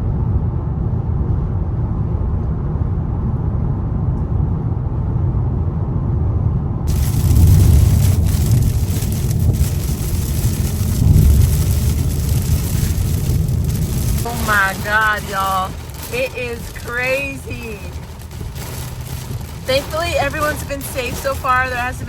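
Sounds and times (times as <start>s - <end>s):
deep rumbling surges: 0.0s - 22.0s
car interior road rumble: 6.9s - 22.0s
heavy rain on car: 6.9s - 22.0s.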